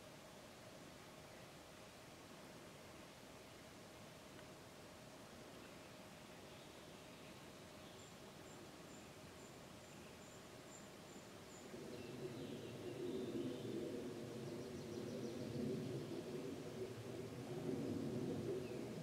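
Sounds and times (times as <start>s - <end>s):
low steady tonal hum: 0.0s - 19.0s.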